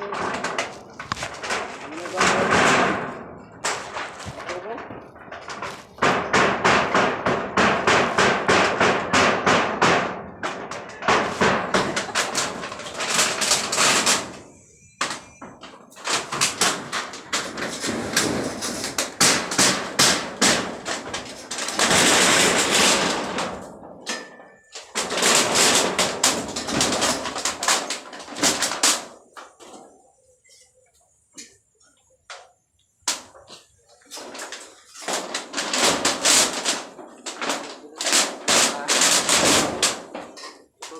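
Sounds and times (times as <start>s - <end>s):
hammer knocking and banging: 0.0s - 29.8s.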